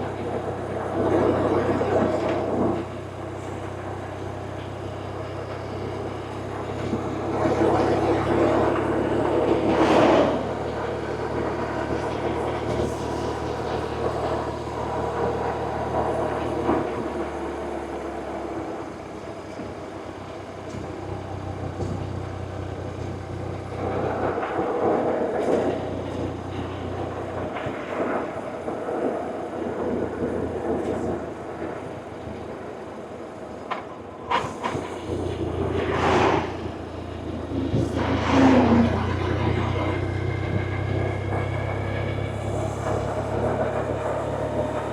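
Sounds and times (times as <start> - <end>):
motorcycle engine running: 38.7 - 44.9.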